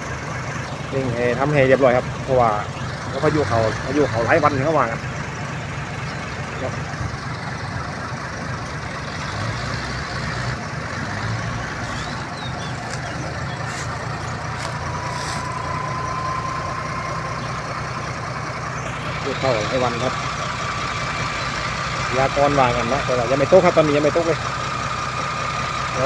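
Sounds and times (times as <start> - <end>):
diesel truck engine rumbling: 0.0 - 26.0
thin steady whine: 11.8 - 20.2.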